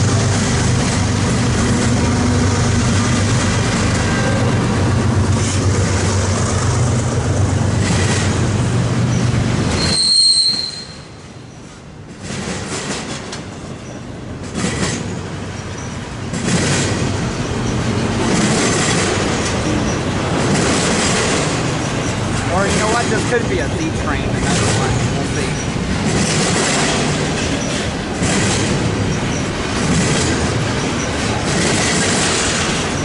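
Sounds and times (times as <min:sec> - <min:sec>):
wheels clattering over rails: 0:00.0 - 0:10.7, 0:11.5 - 0:33.0
locomotive droning: 0:00.0 - 0:33.0
train wheel squeal: 0:09.1 - 0:11.7, 0:14.8 - 0:16.0, 0:24.9 - 0:27.9.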